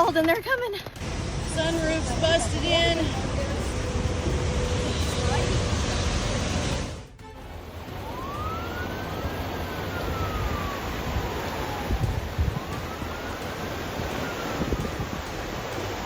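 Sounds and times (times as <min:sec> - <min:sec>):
steady rushing noise: 0:01.0 - 0:16.0
siren wailing: 0:07.2 - 0:16.0
low thumps: 0:11.8 - 0:16.0.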